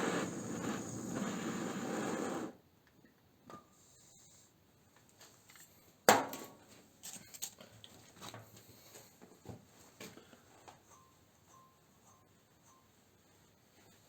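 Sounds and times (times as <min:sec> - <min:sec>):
tools and metal parts handled: 0:06.4 - 0:08.4.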